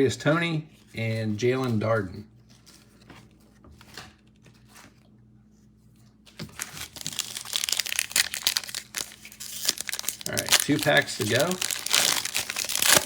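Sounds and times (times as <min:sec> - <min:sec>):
wrapper tearing and crinkling: 0:06.4 - 0:13.0.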